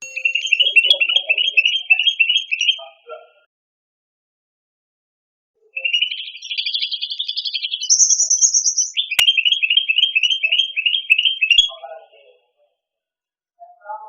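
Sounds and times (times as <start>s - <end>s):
songbird singing: 0.0s - 3.0s, 5.8s - 11.8s.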